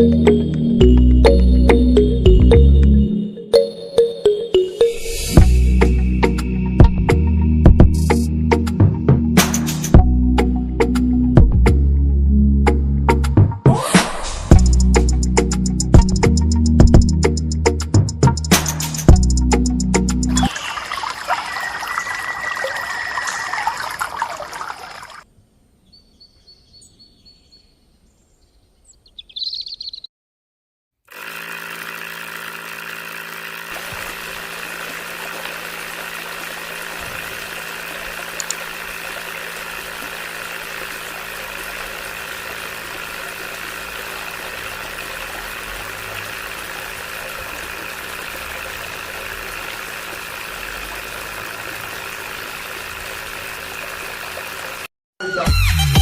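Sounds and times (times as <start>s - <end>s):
small electric motor humming: 14.5s - 16.6s, 31.1s - 54.9s.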